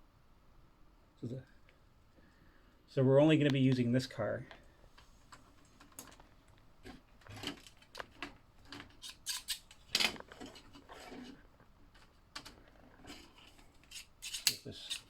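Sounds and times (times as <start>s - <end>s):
plastic track pieces clicking: 7.3s - 10.6s.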